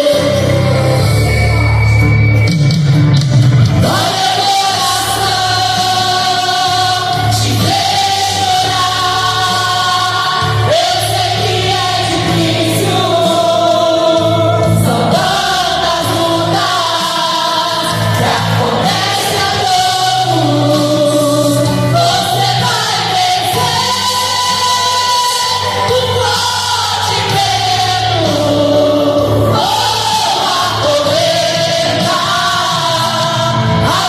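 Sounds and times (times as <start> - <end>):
choir singing gospel: 0.0 - 2.4, 3.7 - 34.0
instrumental accompaniment: 0.0 - 34.0.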